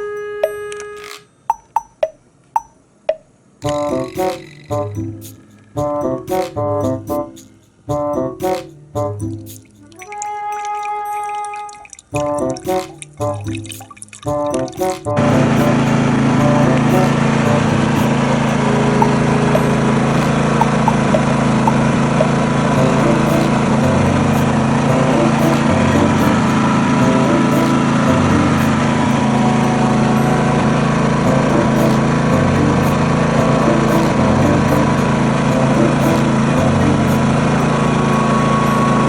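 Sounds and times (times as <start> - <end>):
portable generator running: 15.2 - 39.0.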